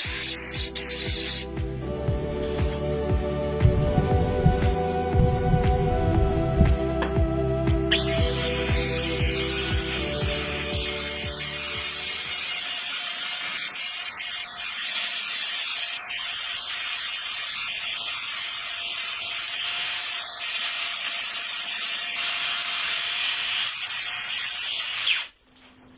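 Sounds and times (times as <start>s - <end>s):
electric sander on wood: 7.9s - 22.2s.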